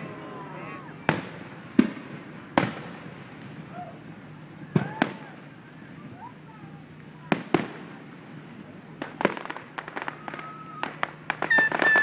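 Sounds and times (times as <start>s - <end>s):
fireworks shells bursting: 9.0s - 12.0s.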